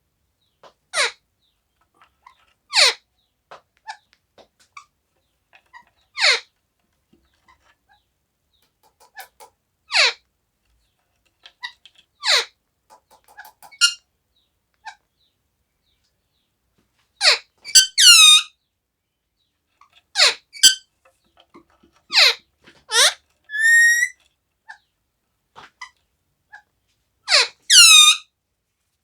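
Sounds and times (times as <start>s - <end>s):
faint clicks: 8.6s - 9.6s, 12.9s - 14.0s
parrot squeaky calls: 8.9s - 10.1s, 12.3s - 14.0s, 17.2s - 18.4s, 22.9s - 24.2s, 27.3s - 28.2s.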